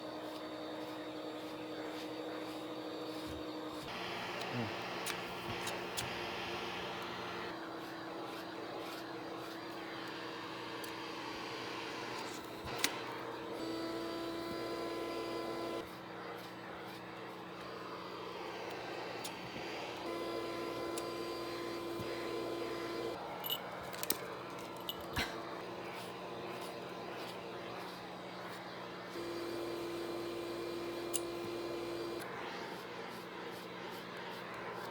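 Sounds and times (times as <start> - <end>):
vacuum cleaner running: 0.0 - 34.9.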